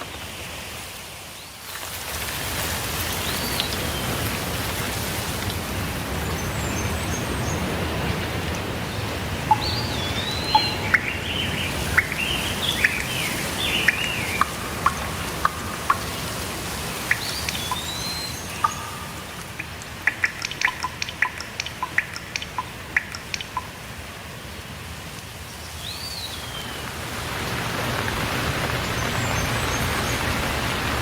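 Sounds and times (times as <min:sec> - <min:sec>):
steady rain: 0:00.0 - 0:31.0
birds warbling: 0:09.0 - 0:23.6
sharp bird chips: 0:09.5 - 0:23.6.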